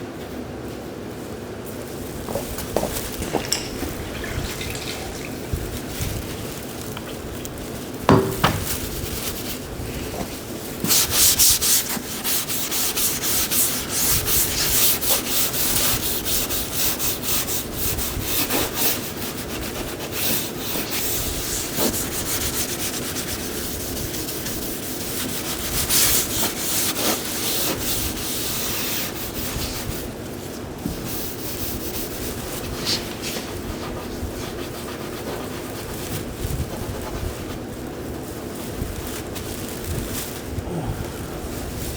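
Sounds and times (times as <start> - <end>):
shop equipment hum: 0.0 - 14.1
sandpaper rubbing on metal panel: 8.1 - 30.2, 31.0 - 37.7.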